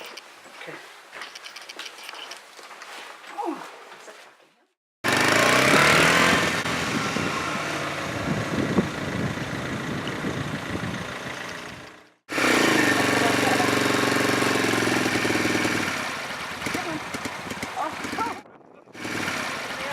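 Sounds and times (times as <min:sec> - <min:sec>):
motorcycle engine idling: 0:07.2 - 0:19.9.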